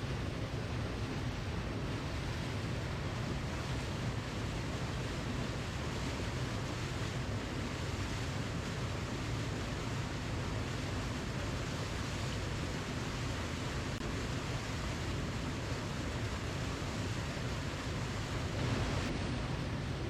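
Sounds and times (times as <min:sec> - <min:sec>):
waterfall roaring: 0:09.6 - 0:20.0.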